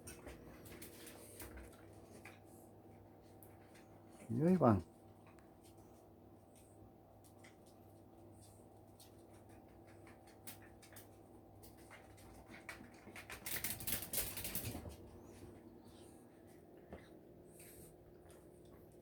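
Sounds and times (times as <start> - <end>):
animals scuffling and rustling: 0.0 - 19.0
claws clicking and pattering: 5.2 - 15.7.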